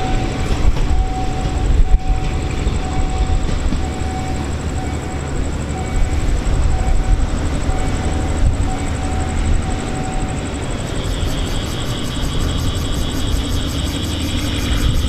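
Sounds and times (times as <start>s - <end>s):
train rumbling on tracks: 0.0s - 15.0s
thin high tone: 10.2s - 15.0s.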